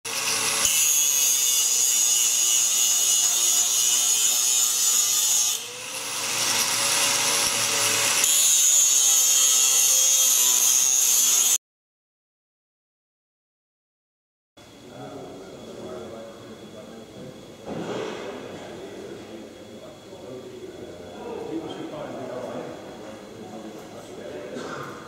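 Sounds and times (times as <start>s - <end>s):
power tool cutting sheet steel: 0.1s - 11.6s.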